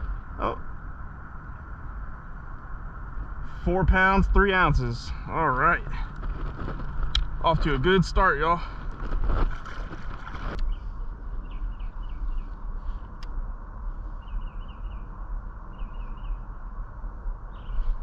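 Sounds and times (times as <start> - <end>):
low outdoor rumble: 0.0 - 18.0
small bird chirping: 10.6 - 12.6, 14.2 - 15.1, 15.7 - 16.5.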